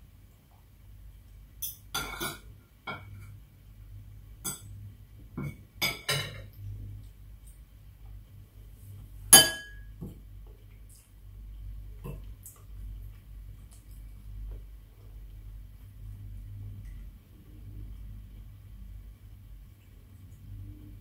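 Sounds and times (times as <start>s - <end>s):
cutlery clinking on a plate: 1.6s - 3.3s, 5.4s - 6.5s, 9.4s - 9.9s
spoon striking a glass bowl: 9.4s - 9.9s.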